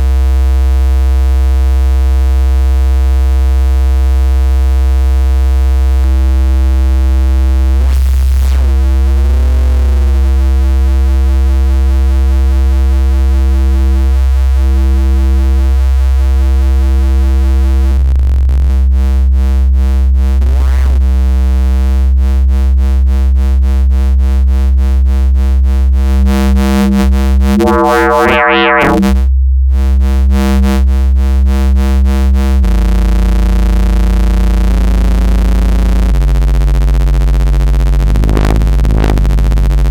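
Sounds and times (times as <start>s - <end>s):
buzzy fm bass synth note: 26.0s - 29.2s, 37.8s - 39.6s.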